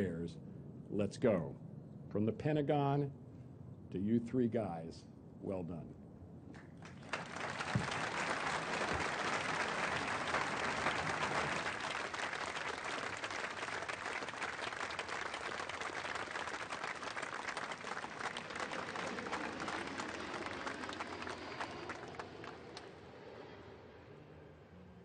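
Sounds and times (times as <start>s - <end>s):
audience applauding: 6.8s - 22.6s.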